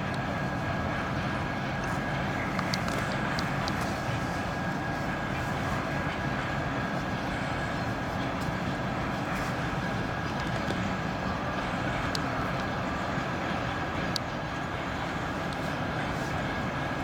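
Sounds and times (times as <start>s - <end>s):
freight train rolling past: 0.0s - 17.0s.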